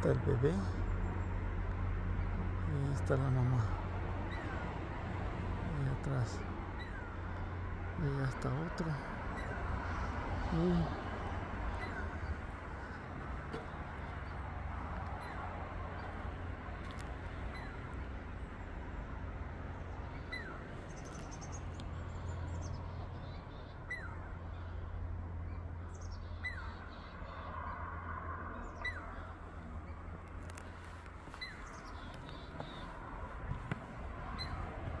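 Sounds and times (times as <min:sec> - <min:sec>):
high bird chirps: 0:19.9 - 0:27.9, 0:28.5 - 0:33.6, 0:34.2 - 0:34.8.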